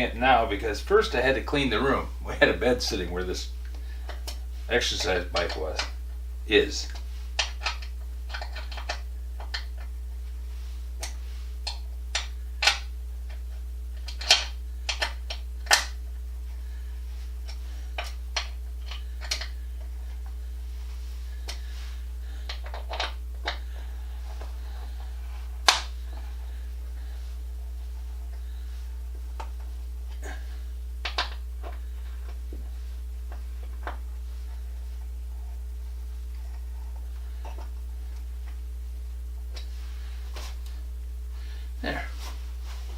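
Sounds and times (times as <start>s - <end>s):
low hum: 0.0s - 42.9s
parts and tools clicking and knocking: 6.9s - 10.0s, 14.0s - 16.0s, 17.5s - 20.4s, 22.5s - 23.7s.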